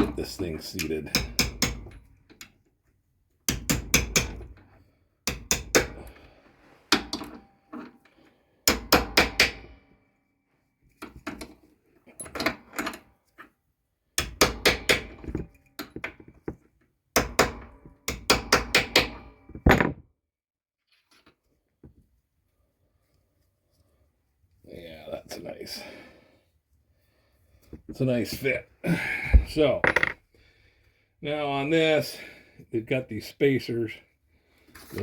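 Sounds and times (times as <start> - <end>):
hammer tapping metal: 0.8 - 2.0.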